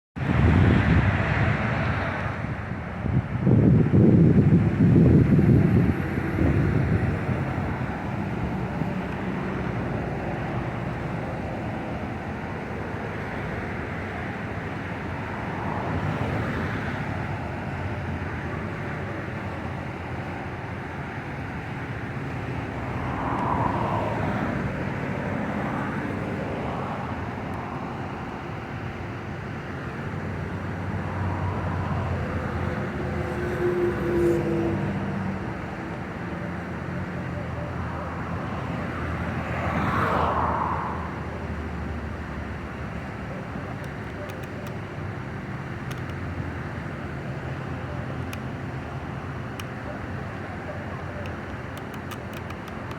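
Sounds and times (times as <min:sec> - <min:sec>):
wind blowing across microphone: 0:00.2 - 0:33.2
passing traffic hum: 0:00.2 - 0:52.9.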